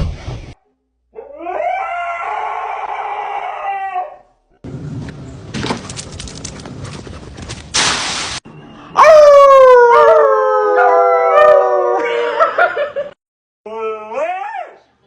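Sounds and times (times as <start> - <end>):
dog howling: 1.1 - 4.3, 9.0 - 12.1
rustling and clatter: 5.0 - 7.7
short loud hiss: 7.8 - 8.4.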